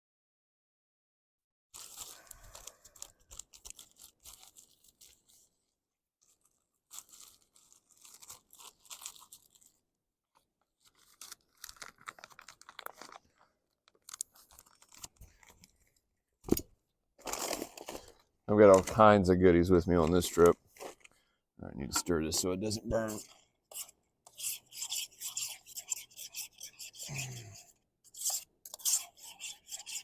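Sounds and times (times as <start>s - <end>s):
plastic packaging crinkling: 1.8s - 5.5s, 6.2s - 9.8s, 10.6s - 16.6s, 17.2s - 21.3s.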